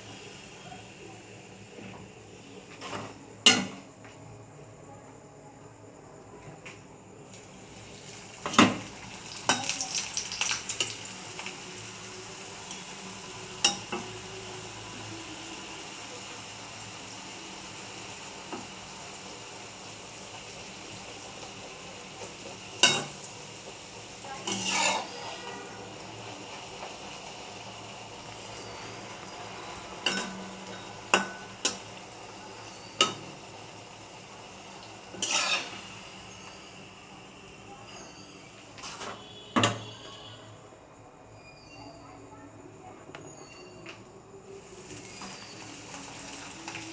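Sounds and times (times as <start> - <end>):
oil sizzling in a frying pan: 0.0 - 4.0, 7.2 - 40.2, 44.4 - 46.9
metal utensil clinking on pot: 30.0 - 31.8.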